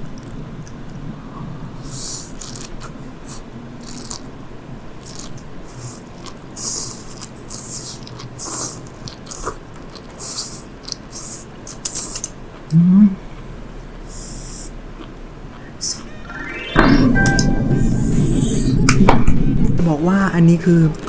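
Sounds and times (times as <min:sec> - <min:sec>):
crisp crackly chewing: 0:01.8 - 0:13.5.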